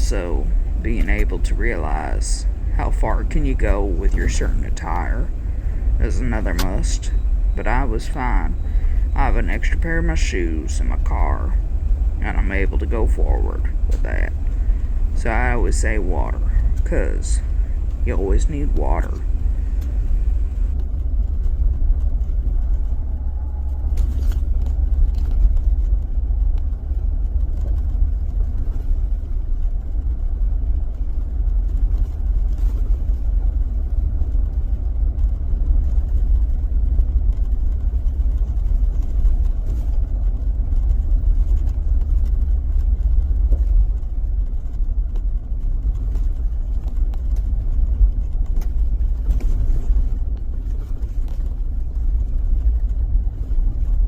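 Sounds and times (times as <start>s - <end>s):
car driving on road: 0.0s - 20.8s.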